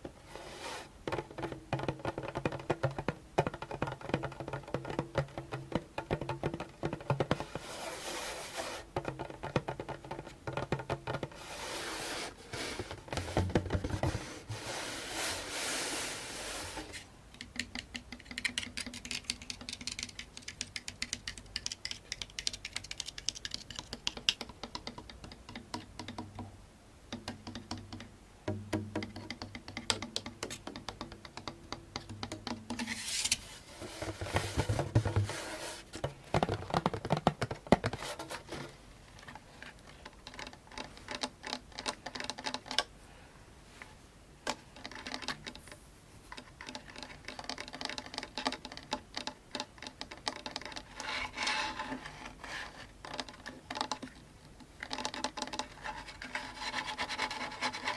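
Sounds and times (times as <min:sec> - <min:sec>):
fingers tapping on hand drum: 0:01.0 - 0:07.6, 0:09.0 - 0:11.3, 0:27.1 - 0:32.8.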